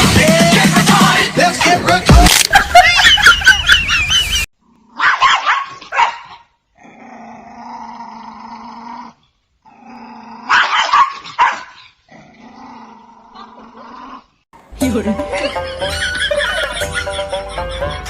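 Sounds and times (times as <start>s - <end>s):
dog growling and barking: 4.6s - 14.4s.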